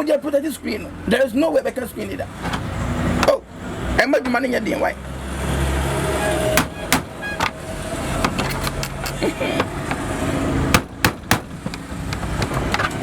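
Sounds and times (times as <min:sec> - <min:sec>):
sharp knocks: 0:06.5 - 0:12.9.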